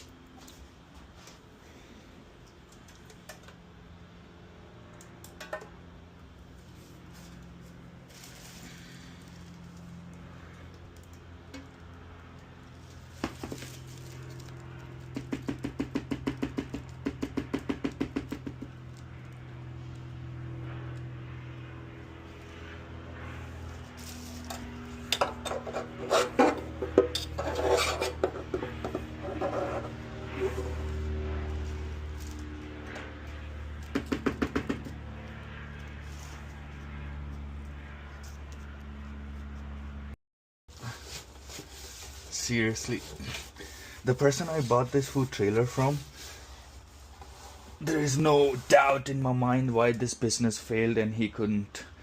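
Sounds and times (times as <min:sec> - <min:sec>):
steady low hum: 0:00.0 - 0:52.0
scraping grime off a fryer: 0:22.6 - 0:31.9, 0:40.8 - 0:49.0.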